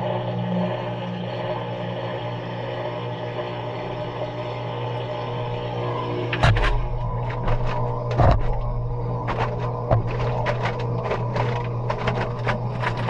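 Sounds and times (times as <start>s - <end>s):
washing machine motor hum: 0.0s - 13.0s
sharp knocks: 6.4s - 13.0s.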